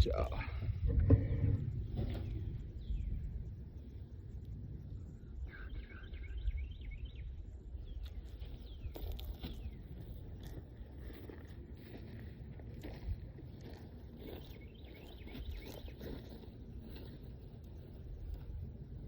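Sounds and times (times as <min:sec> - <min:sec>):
low outdoor rumble: 0:00.0 - 0:19.0
bird singing chirps: 0:01.2 - 0:10.6, 0:14.2 - 0:16.5.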